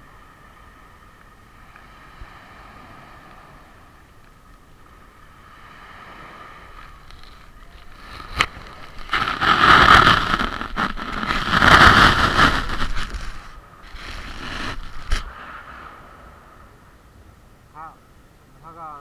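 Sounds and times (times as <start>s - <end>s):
waves washing up beach: 0.1s - 16.4s.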